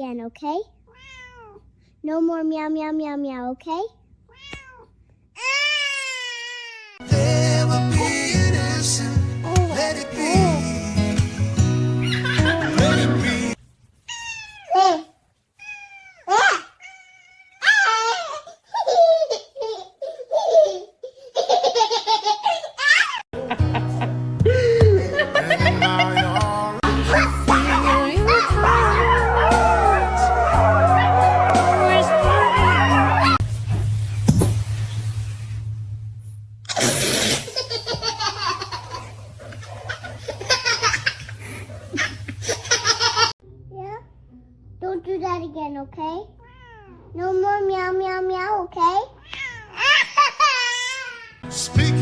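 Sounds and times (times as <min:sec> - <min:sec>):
music: 0:07.0 - 0:13.6, 0:23.4 - 0:33.4, 0:51.4 - 0:52.0
baby laughing: 0:12.0 - 0:13.6, 0:17.6 - 0:23.2, 0:24.8 - 0:29.2, 0:37.2 - 0:43.4.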